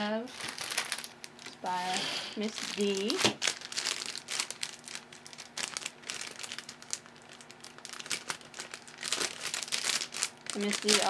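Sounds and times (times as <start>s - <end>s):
faint steady hum: 0.0s - 11.0s
packaging crinkling: 0.0s - 11.0s.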